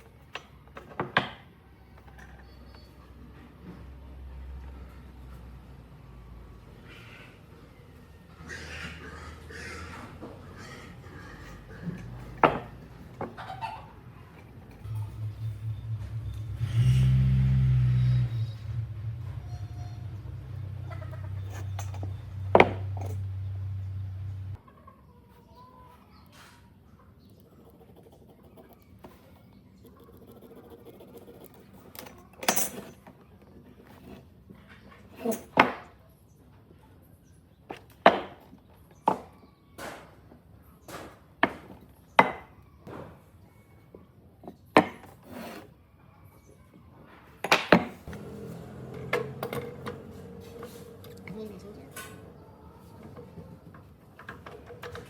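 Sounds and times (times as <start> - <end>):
steady low hum: 14.8 - 20.8.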